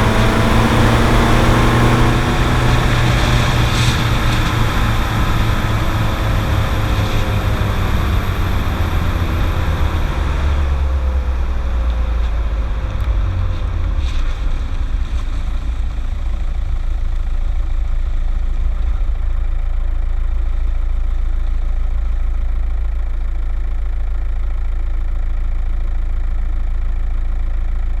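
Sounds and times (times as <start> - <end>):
road noise: 0.0 - 19.3
diesel car engine winding down: 0.0 - 28.0.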